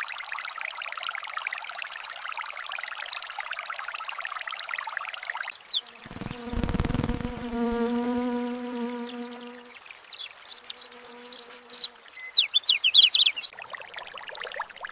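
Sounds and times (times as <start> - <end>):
flying insect buzzing: 5.8 - 9.8.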